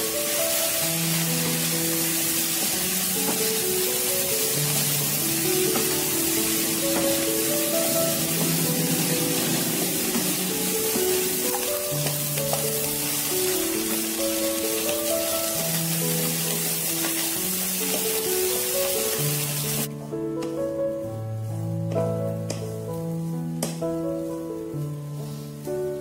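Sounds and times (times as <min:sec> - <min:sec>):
food sizzling in a wok: 0:00.0 - 0:19.9, 0:21.4 - 0:26.0
gentle melody: 0:00.0 - 0:26.0
wooden spatula stirring: 0:00.1 - 0:20.5.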